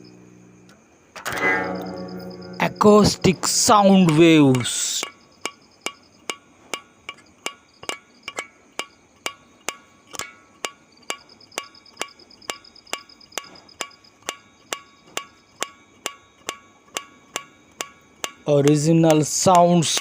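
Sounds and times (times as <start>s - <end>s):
evenly spaced ringing knocks: 1.2s - 20.0s
faint fast high trill: 1.3s - 3.6s.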